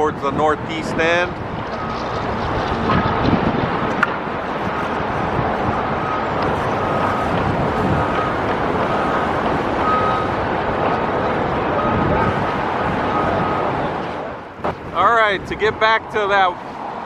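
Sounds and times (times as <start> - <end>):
wind buffeting microphone: 0.0 - 17.0
reversing alarm beeps: 1.7 - 2.1, 5.6 - 10.4, 11.7 - 13.9.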